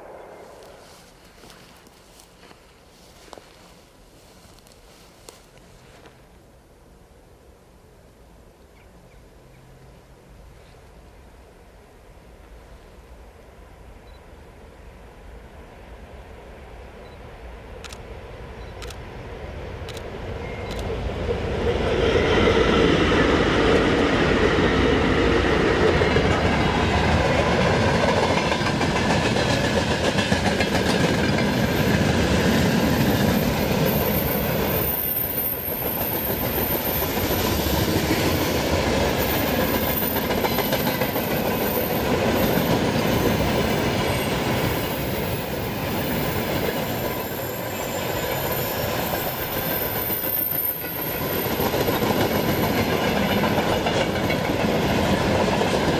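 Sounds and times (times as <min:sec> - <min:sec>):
train wheels rumbling on rails: 0:00.0 - 0:06.1, 0:18.6 - 0:55.9
clickety-clack of rail joints: 0:19.8 - 0:55.9.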